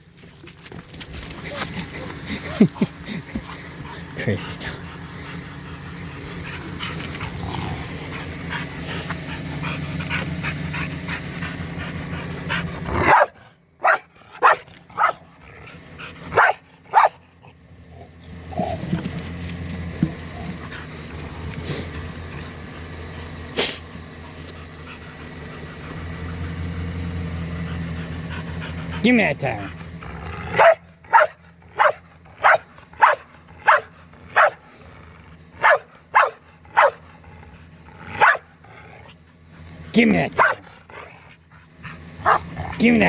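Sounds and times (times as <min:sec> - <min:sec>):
steady low hum: 0:00.0 - 0:43.0
dog barking: 0:12.9 - 0:15.2, 0:16.3 - 0:17.2, 0:30.5 - 0:34.6, 0:35.6 - 0:37.0, 0:38.2 - 0:38.5, 0:40.4 - 0:41.1, 0:42.2 - 0:42.5.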